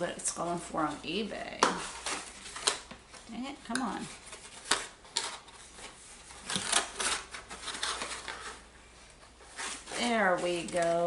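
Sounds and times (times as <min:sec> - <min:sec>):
packaging clicks and rustles: 0:04.0 - 0:08.7.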